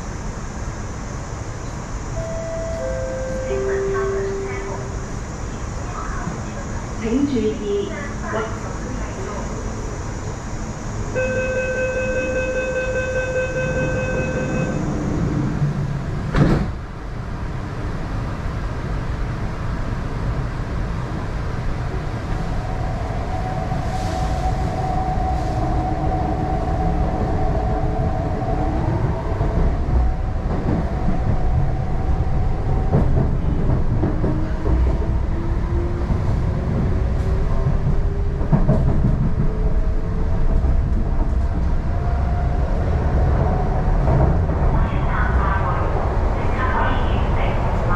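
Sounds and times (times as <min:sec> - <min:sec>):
train car rumble: 0:00.0 - 0:47.9
door-closing warning beep: 0:02.2 - 0:04.7, 0:11.2 - 0:14.9.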